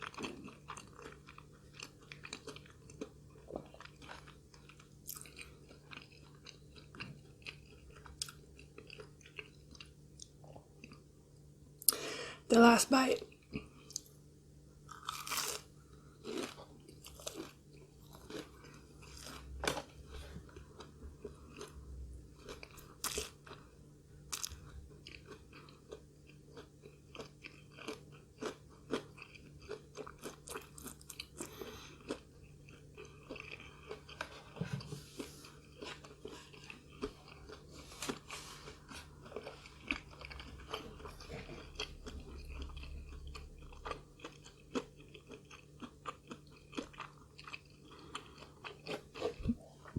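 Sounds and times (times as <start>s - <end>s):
crunchy bites and chewing: 14.9s - 20.0s, 22.4s - 23.6s, 24.3s - 34.6s, 35.6s - 49.9s.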